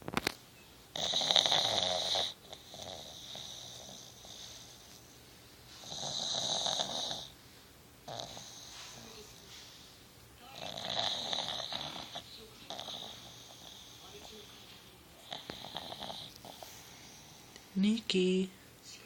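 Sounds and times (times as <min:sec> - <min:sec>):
dog snoring: 0:00.9 - 0:05.1, 0:05.8 - 0:07.4, 0:08.0 - 0:09.4, 0:10.4 - 0:17.4
dog snuffling breaths: 0:08.1 - 0:17.6.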